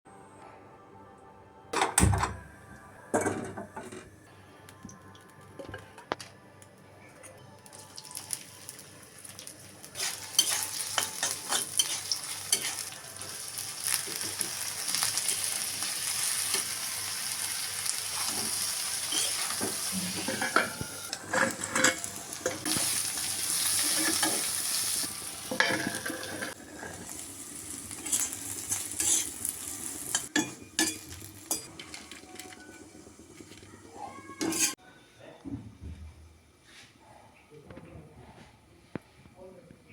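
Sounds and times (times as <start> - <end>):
vegetables sizzling in hot oil: 7.8 - 33.5
spatula clicking and scraping pan: 10.0 - 12.9, 27.9 - 32.2.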